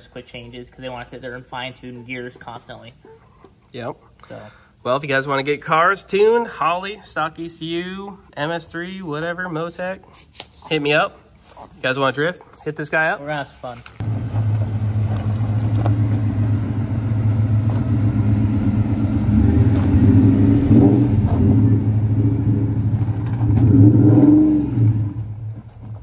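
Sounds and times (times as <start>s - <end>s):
engine throttle blips: 14.0s - 25.9s
car engine idling: 14.0s - 26.0s.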